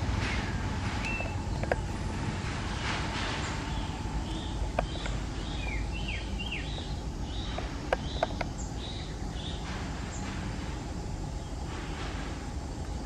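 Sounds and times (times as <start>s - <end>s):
birds chirping: 0.0s - 12.0s
low background rumble: 0.0s - 13.0s.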